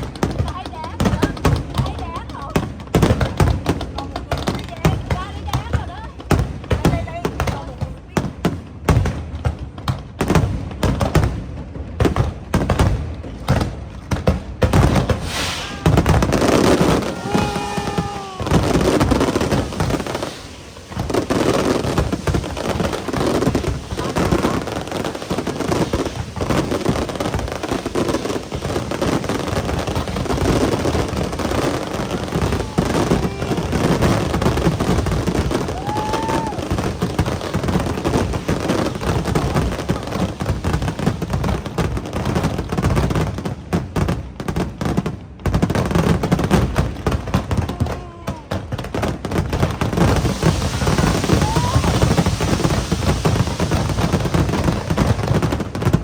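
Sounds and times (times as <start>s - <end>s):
fireworks bangs and crackling: 0.0s - 56.0s
crowd voices: 15.2s - 29.4s, 30.0s - 40.4s, 50.2s - 52.9s.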